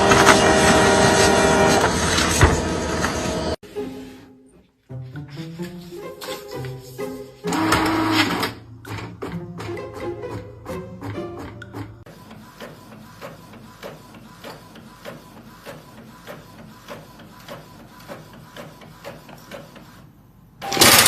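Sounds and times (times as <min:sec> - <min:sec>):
printer mechanism clicking: 0:07.5 - 0:10.4
faint steady printer whine: 0:11.3 - 0:21.0.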